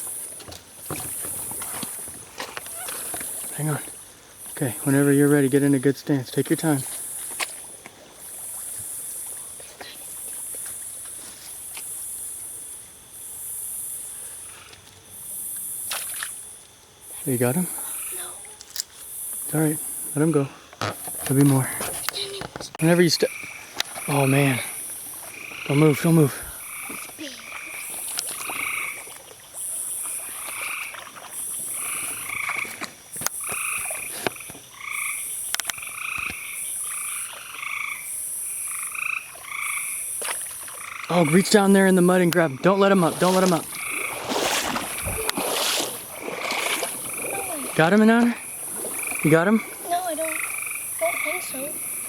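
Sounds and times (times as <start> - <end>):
frogs calling: 0.0 - 52.0
insects buzzing: 0.0 - 52.0
sharp clicks: 35.5 - 36.4
sharp knock or splash: 43.0 - 47.3.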